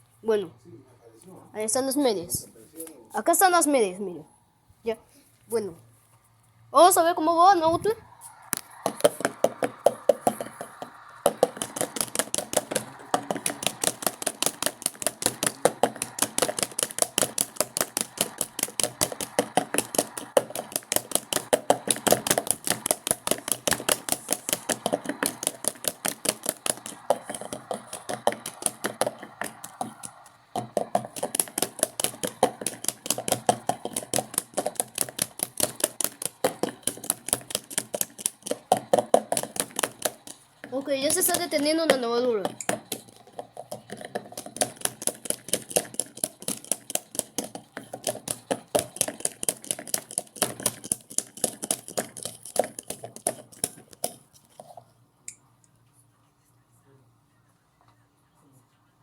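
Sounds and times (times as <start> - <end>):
washing machine spin cycle clacking: 8.7 - 54.1.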